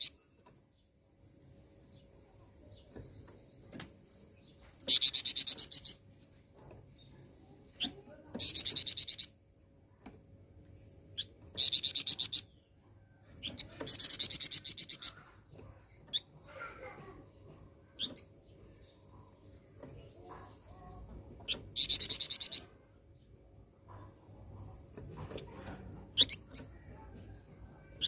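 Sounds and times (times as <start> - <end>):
faint bird chirps: 0.0 - 0.9, 10.8 - 23.3, 25.4 - 28.0.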